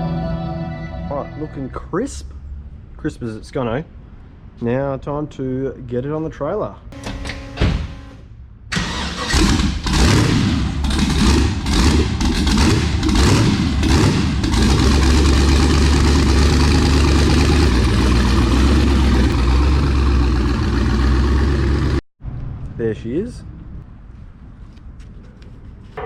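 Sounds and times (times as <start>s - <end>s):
race car engine revving and idling: 8.9s - 22.0s.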